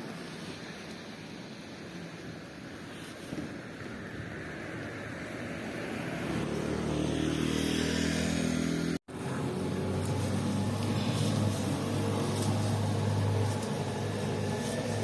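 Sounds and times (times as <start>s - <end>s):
low engine hum: 5.4s - 15.0s.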